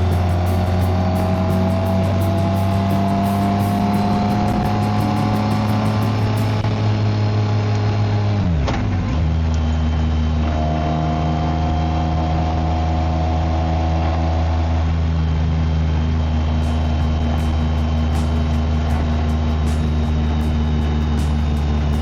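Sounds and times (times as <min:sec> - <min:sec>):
motorcycle engine running: 0:00.0 - 0:10.4, 0:15.6 - 0:22.0.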